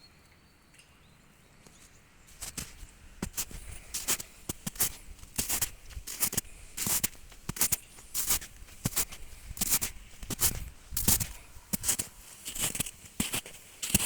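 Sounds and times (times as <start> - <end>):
footsteps crunching: 2.3 - 14.0.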